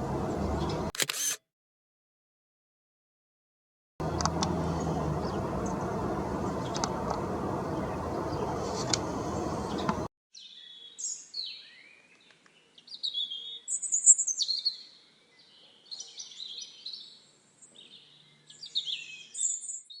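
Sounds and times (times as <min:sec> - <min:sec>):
songbirds chirping: 0:00.0 - 0:00.9, 0:04.0 - 0:20.0
outdoor background noise: 0:00.0 - 0:01.4, 0:04.0 - 0:20.0
clicks: 0:04.0 - 0:04.6, 0:06.7 - 0:07.3.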